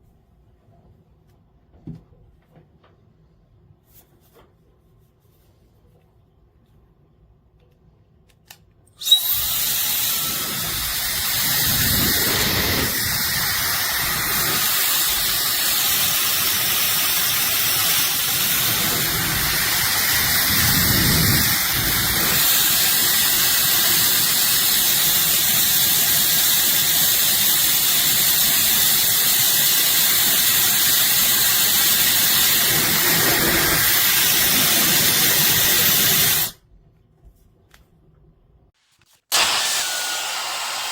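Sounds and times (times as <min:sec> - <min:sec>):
hair dryer running: 0:09.0 - 0:36.6, 0:39.3 - 0:40.9.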